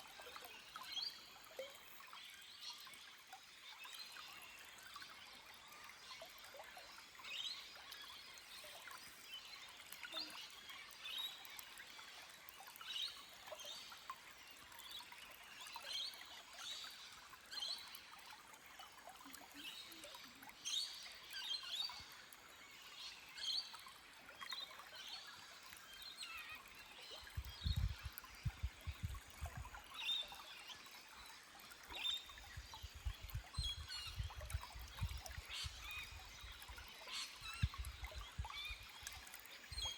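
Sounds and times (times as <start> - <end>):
stream flowing over rock: 0.0 - 39.9
small birds chirping: 24.7 - 39.9.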